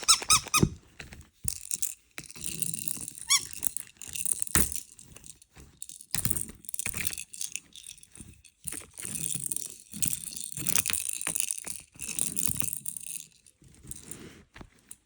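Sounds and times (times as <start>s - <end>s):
dog toys rattling and jingling: 0.0s - 0.7s, 1.5s - 14.1s.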